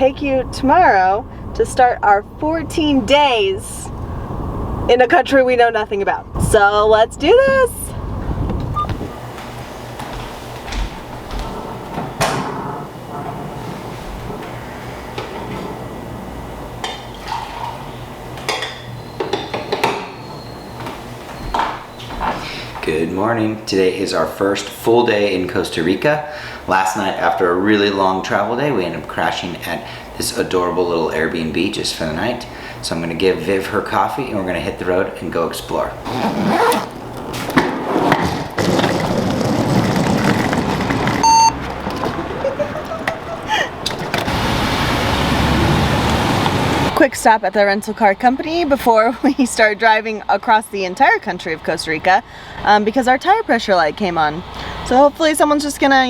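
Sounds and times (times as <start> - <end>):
car engine rumbling: 0.0 - 16.8, 35.9 - 47.0
steady low hum: 0.0 - 17.2
short electronic beep: 41.2 - 41.6.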